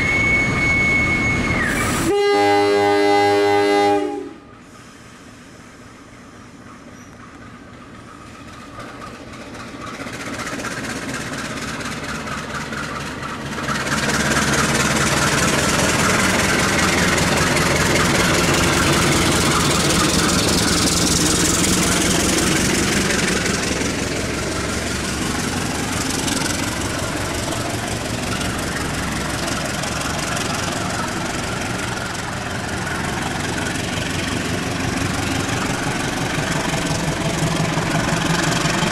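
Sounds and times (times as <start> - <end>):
diesel locomotive engine: 0.0 - 38.9.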